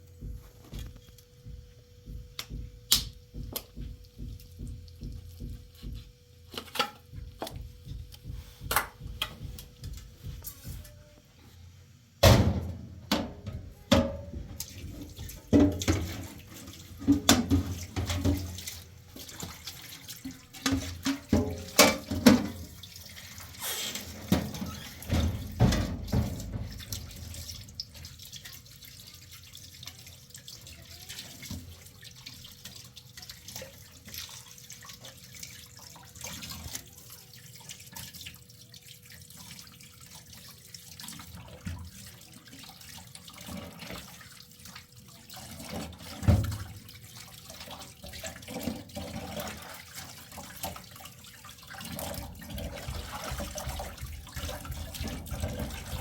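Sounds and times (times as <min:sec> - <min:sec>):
sharp knocks and clattering: 0:00.2 - 0:10.9, 0:12.2 - 0:18.7, 0:24.2 - 0:27.7.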